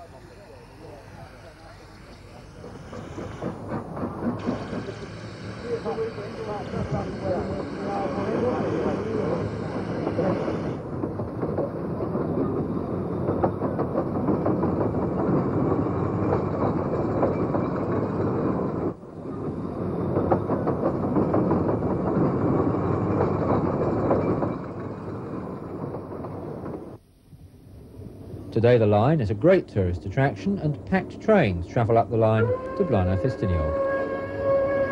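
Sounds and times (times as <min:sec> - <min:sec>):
railway wagons rumbling: 0:00.0 - 0:27.0, 0:28.0 - 0:34.9
wheels clattering on rail joints: 0:01.7 - 0:27.0.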